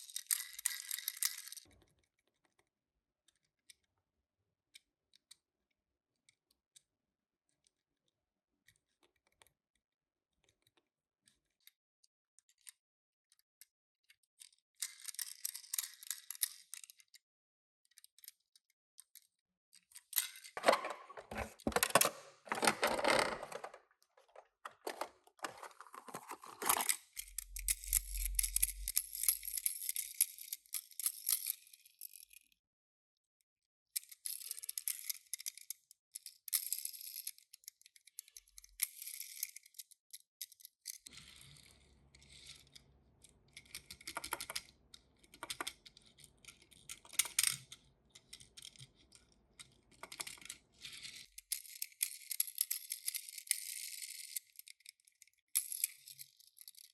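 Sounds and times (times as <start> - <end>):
metal toy cars rattling on plastic: 0.0 - 1.6, 20.2 - 31.9, 43.5 - 56.9
plastic packaging crinkling: 20.6 - 27.0.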